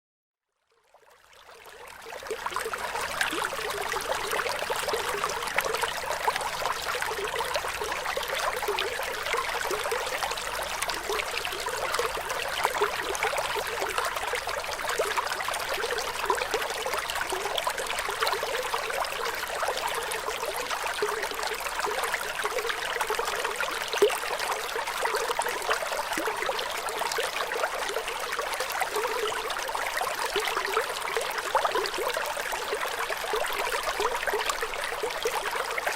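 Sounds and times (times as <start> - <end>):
water trickling: 1.2 - 35.9.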